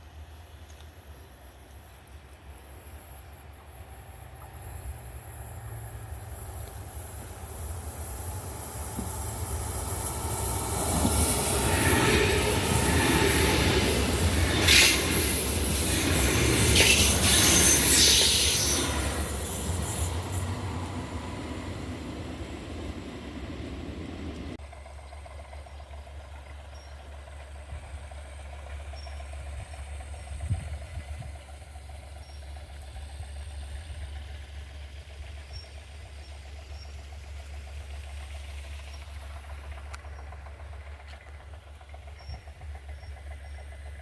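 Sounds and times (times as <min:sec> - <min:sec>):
engine idling with low rumble: 0:24.6 - 0:44.0.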